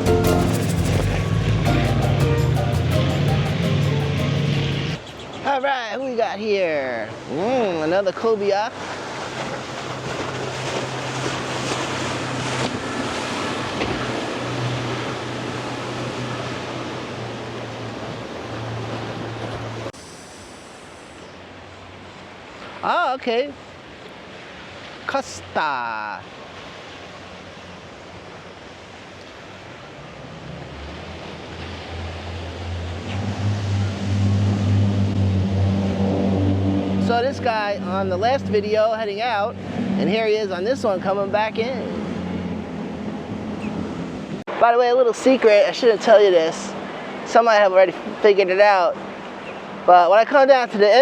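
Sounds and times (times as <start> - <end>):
motorboat engine drone: 0.0 - 5.4, 8.7 - 22.5, 26.8 - 44.5, 45.8 - 49.9
surf: 0.0 - 51.0
wind: 0.0 - 51.0
water hissing: 19.9 - 21.7.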